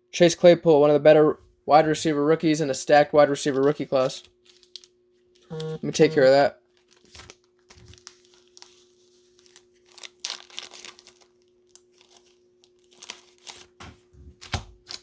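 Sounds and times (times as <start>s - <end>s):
faint steady hum: 0.2s - 14.4s
card sleeves crinkling: 3.4s - 15.0s.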